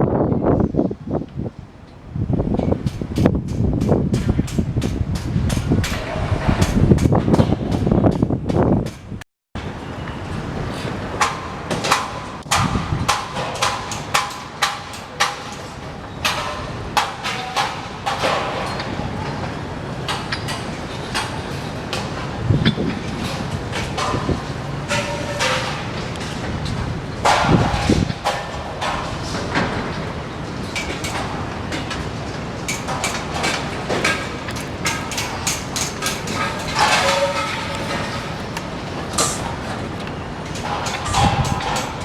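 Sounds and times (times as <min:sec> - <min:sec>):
gusting wind: 0:00.0 - 0:42.0
knocks and rattles: 0:20.1 - 0:42.0.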